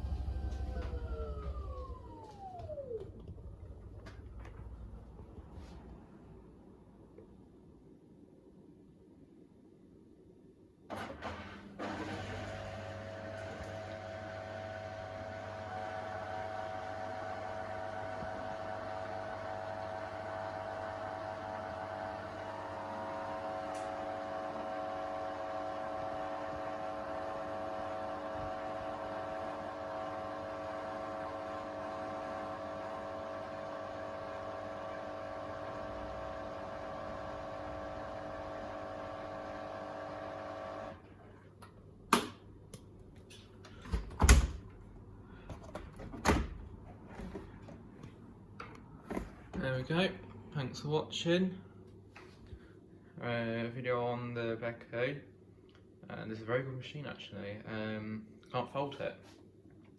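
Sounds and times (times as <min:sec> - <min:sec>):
washing machine spinning: 0:00.0 - 0:06.8, 0:10.9 - 0:49.8.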